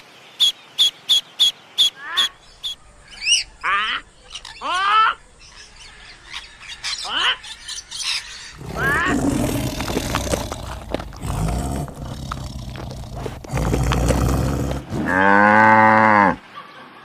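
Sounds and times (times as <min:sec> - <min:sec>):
cow mooing: 0:08.6 - 0:16.4.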